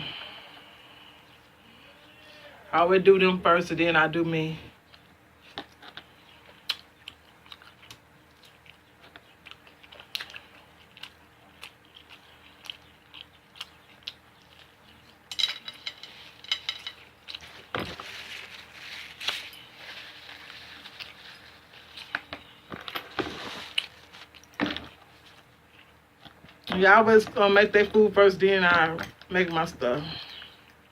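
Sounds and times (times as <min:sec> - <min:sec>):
person chewing and eating: 0:04.8 - 0:26.7.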